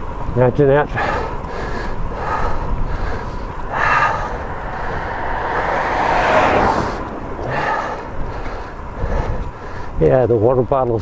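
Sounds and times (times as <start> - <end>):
wind rumbling on microphone: 1.5 - 10.0
vehicle passing: 2.2 - 9.6.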